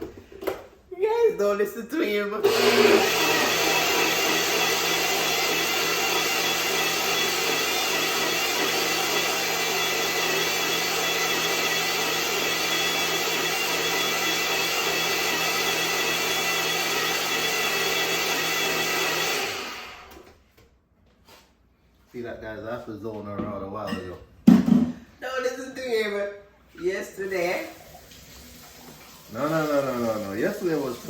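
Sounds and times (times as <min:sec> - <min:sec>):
blender running: 0:02.4 - 0:20.3, 0:27.5 - 0:31.0.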